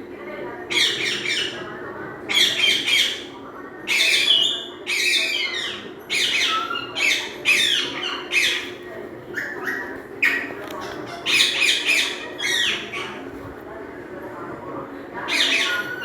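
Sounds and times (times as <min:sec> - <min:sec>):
parrot squawking: 0:00.7 - 0:01.6, 0:02.3 - 0:03.3, 0:03.9 - 0:13.2, 0:15.3 - 0:16.0.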